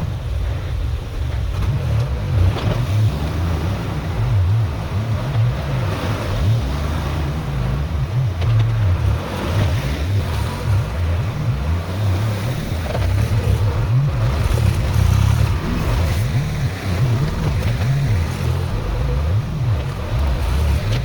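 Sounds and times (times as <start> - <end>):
tractor engine revving: 2.4 - 21.0
gravel being pushed: 11.6 - 21.0.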